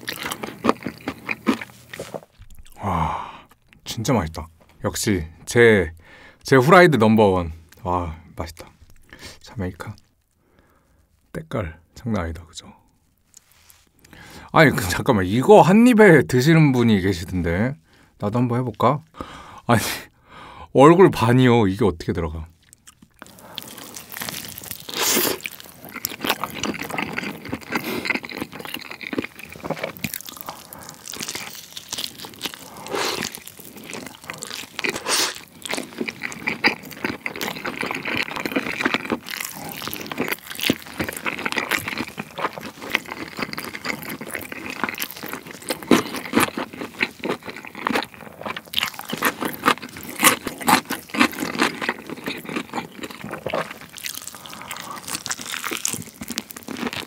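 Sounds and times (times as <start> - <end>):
wet chewing and biting: 0.0 - 2.8, 22.6 - 57.0.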